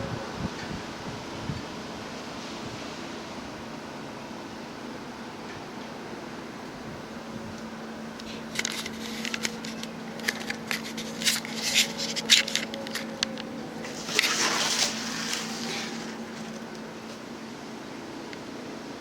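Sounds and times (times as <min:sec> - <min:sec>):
steady low hum: 0:00.0 - 0:19.0
crackling and scraping clicks: 0:07.6 - 0:17.2
rustling noise: 0:08.2 - 0:17.3.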